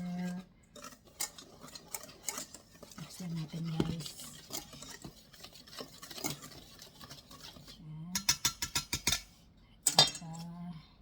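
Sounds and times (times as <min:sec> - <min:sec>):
utensil scraping in bowl: 0:00.0 - 0:09.4.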